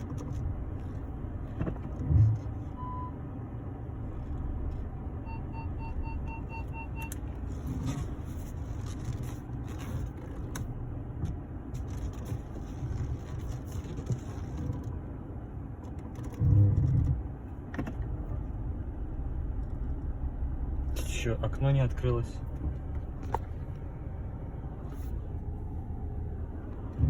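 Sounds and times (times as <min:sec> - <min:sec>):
steering rack creaks and clicks: 0:00.0 - 0:02.8, 0:04.1 - 0:04.9, 0:06.5 - 0:15.1, 0:15.7 - 0:18.5, 0:19.5 - 0:20.1, 0:21.0 - 0:23.9
car running rumble: 0:00.0 - 0:27.0
parking sensor beeping: 0:02.8 - 0:03.2, 0:05.2 - 0:07.4.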